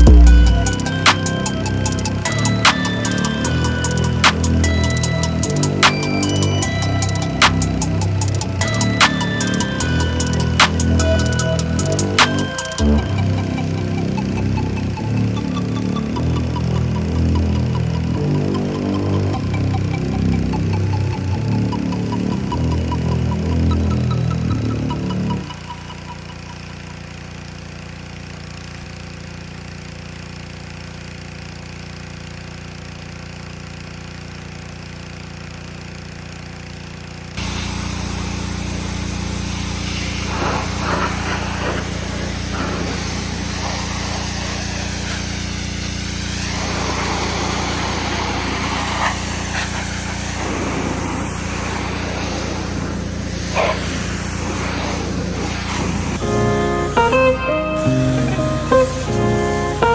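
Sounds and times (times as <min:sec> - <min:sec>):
pressure washer spraying: 0:00.0 - 0:19.8, 0:20.6 - 0:59.9.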